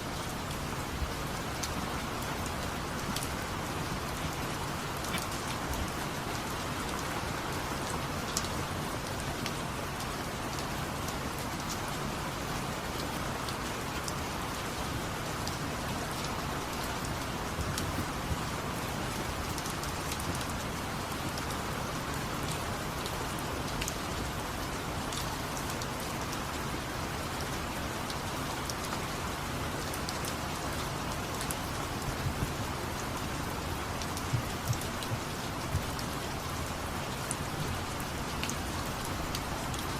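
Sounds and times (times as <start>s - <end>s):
steady rain falling: 0.0s - 39.9s
water drips clicking: 30.1s - 39.5s.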